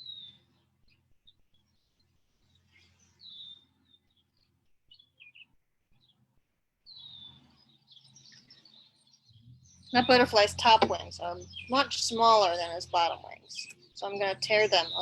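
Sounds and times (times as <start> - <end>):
bird chirps: 0.0 - 6.2, 6.9 - 15.0
bird whistling: 9.8 - 15.0.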